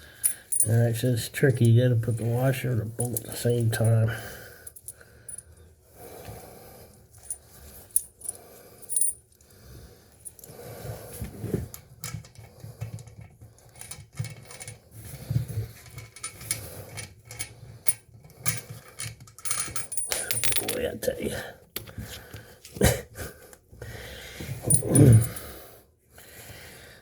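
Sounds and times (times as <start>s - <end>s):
metal washers and bolt clinking: 0.1s - 5.5s, 7.1s - 9.4s, 11.7s - 21.9s, 24.4s - 25.5s.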